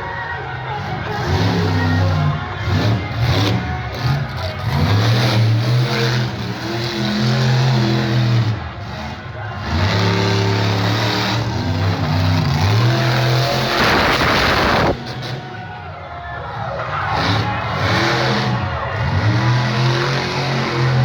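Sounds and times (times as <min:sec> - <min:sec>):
truck engine revving: 0:00.0 - 0:21.0.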